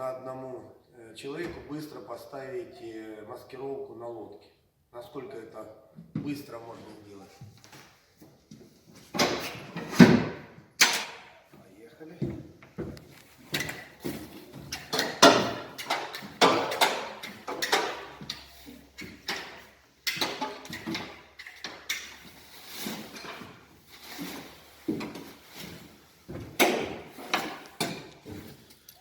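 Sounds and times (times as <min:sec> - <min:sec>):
cover rustling and scraping: 0:13.1 - 0:28.8.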